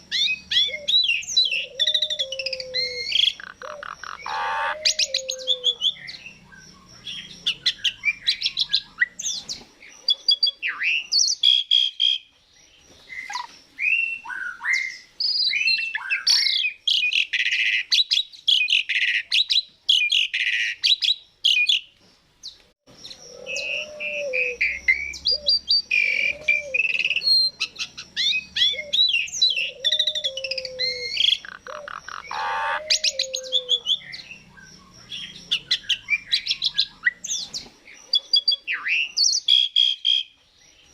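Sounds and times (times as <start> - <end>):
starling singing: 0.0 - 12.3, 23.0 - 40.4.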